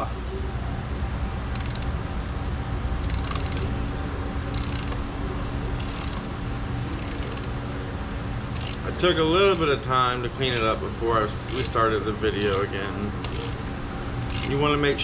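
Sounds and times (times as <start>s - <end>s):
steady low hum: 0.0s - 15.0s
socket ratchet clicking: 1.5s - 2.0s, 3.0s - 3.7s, 4.5s - 5.0s, 5.8s - 6.3s, 7.0s - 7.6s, 8.5s - 8.8s, 9.5s - 9.8s, 11.5s - 11.8s, 12.4s - 13.6s, 14.2s - 14.6s.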